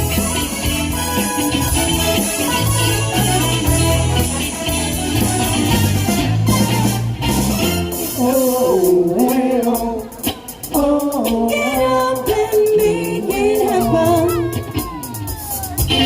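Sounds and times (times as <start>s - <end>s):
pop-rock band playing: 0.0s - 16.0s.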